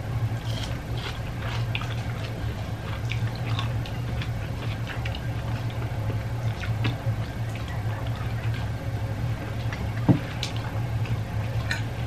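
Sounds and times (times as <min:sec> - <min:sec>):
steady low hum: 0:00.0 - 0:12.0
close wet chewing: 0:00.4 - 0:08.7.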